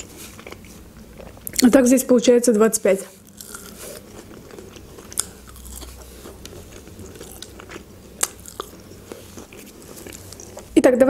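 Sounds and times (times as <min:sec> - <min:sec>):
wet chewing: 0:00.0 - 0:01.8, 0:03.1 - 0:10.8
crunching of breaded food: 0:03.1 - 0:10.7.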